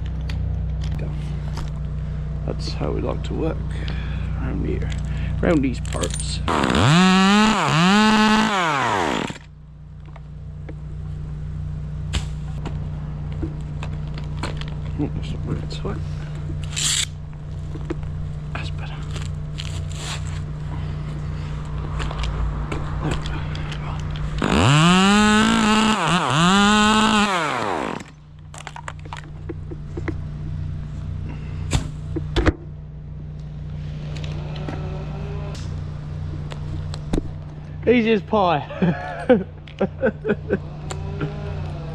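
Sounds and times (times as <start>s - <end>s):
low engine hum: 0.0s - 41.9s
chainsaw revving and idling: 5.5s - 9.5s, 24.4s - 28.2s, 40.5s - 41.9s.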